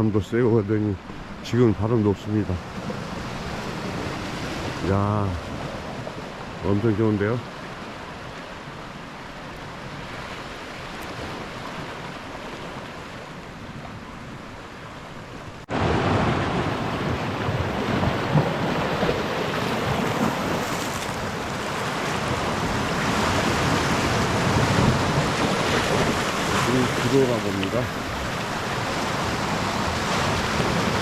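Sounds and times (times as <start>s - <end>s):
sea waves washing on shore: 0.0s - 31.0s.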